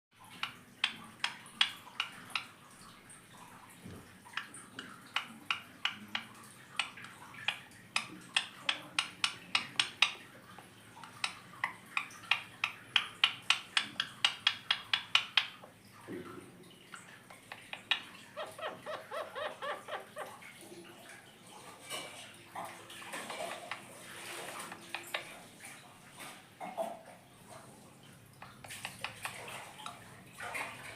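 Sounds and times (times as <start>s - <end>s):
parakeet low chatter: 17.4s - 20.4s
parakeet sharp calls: 17.4s - 20.5s.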